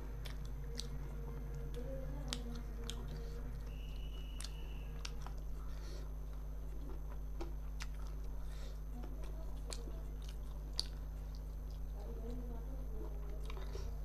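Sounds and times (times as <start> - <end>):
person chewing food: 0.0 - 12.4, 13.0 - 14.0
steady low hum: 0.0 - 14.0.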